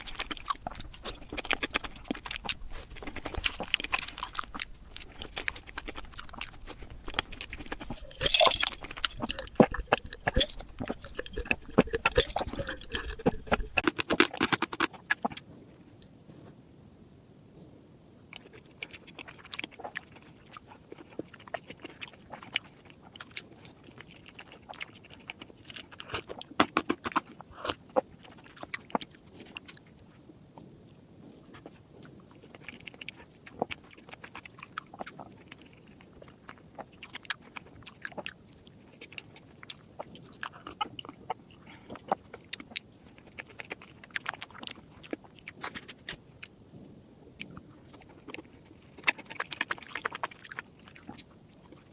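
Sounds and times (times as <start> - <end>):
chewing chocolate desserts: 0.0 - 16.2, 17.6 - 51.9.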